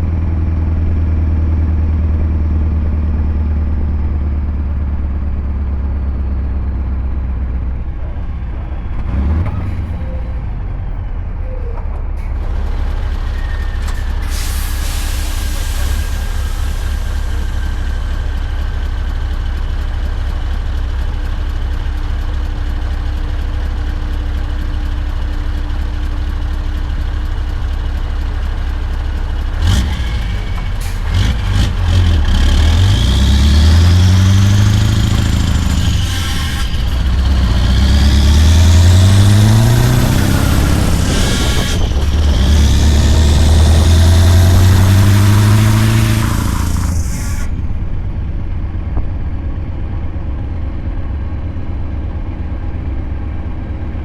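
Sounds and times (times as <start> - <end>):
truck engine revving: 7.0 - 11.3, 29.4 - 48.4.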